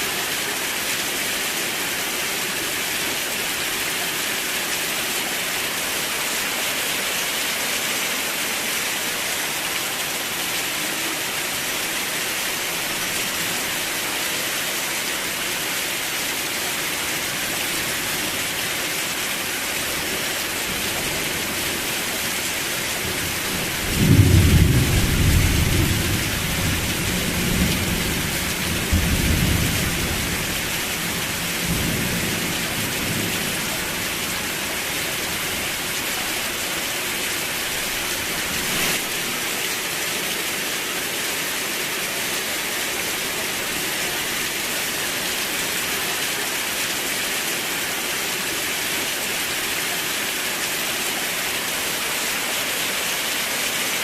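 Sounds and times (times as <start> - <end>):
steady rain falling: 0.0 - 54.0
thunder rumbling: 23.9 - 28.2.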